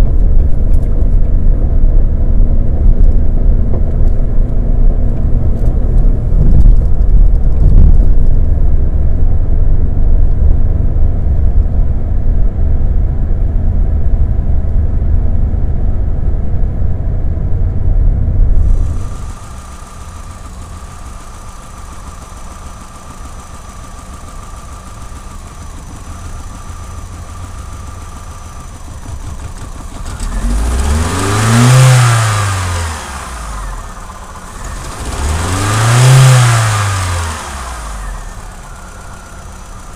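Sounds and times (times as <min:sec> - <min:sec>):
car engine rumbling and idling: 0:00.0 - 0:39.9
engine whine: 0:00.0 - 0:39.9
engine revving: 0:18.6 - 0:39.9.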